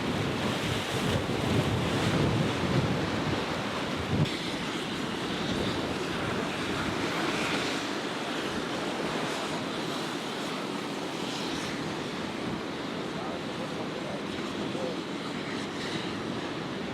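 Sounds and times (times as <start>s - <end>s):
wind buffeting microphone: 0.0s - 9.5s
ocean surf breaking: 0.0s - 15.5s.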